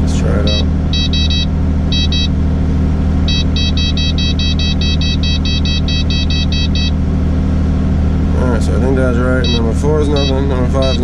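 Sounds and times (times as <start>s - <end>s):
diesel engine running: 0.0s - 11.0s
rapid electronic beeps: 0.4s - 2.3s, 3.3s - 7.0s, 9.4s - 11.0s.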